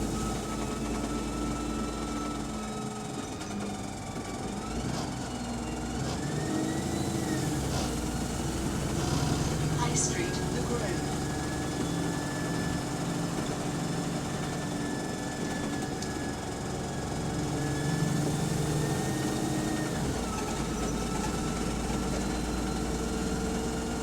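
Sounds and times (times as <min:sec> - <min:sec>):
bus diesel engine: 0:00.0 - 0:24.0
gearbox whine: 0:00.0 - 0:24.0.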